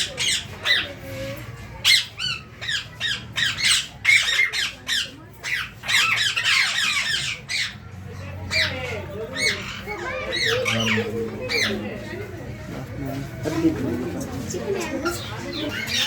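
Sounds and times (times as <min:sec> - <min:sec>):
parakeets squawking: 0:00.0 - 0:12.3, 0:13.6 - 0:16.0.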